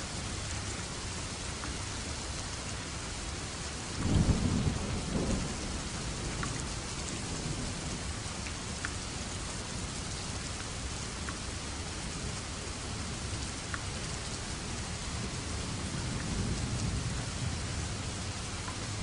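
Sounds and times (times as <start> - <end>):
steady rain falling: 0.0 - 19.0
thunder rumbling: 4.0 - 8.2
raindrop ticking: 5.2 - 9.2, 10.1 - 11.7, 13.5 - 14.3, 16.0 - 16.9, 18.5 - 19.0.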